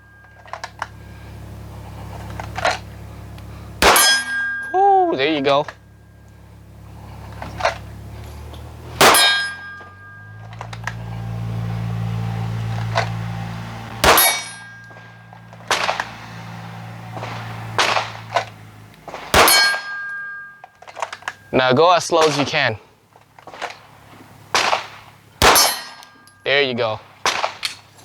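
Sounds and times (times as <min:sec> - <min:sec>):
low steady hum: 0:00.0 - 0:28.0
pistol shots: 0:03.8 - 0:05.4, 0:09.0 - 0:10.8, 0:13.9 - 0:20.5, 0:24.5 - 0:28.0
bullets ringing on steel target: 0:03.8 - 0:05.8, 0:09.0 - 0:10.8, 0:13.9 - 0:16.1, 0:19.3 - 0:21.5, 0:24.6 - 0:27.9.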